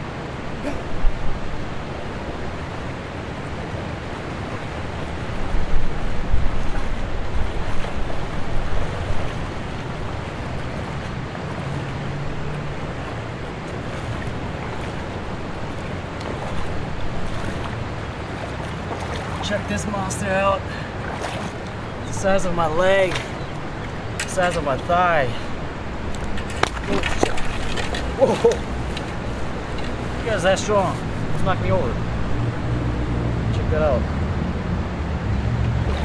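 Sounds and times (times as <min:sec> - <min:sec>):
river current rushing: 0:00.0 - 0:36.0
wind buffeting microphone: 0:00.0 - 0:36.0.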